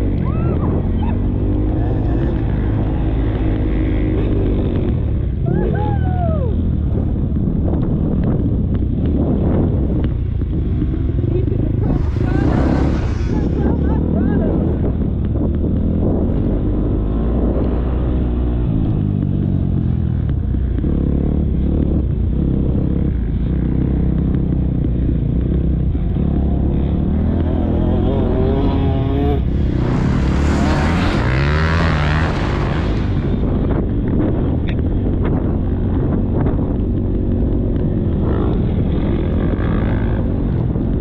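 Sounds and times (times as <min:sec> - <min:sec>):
motocross bike engine revving: 0:10.8 - 0:14.5, 0:26.2 - 0:33.8
loud rushing noise: 0:11.7 - 0:14.2, 0:28.8 - 0:33.6.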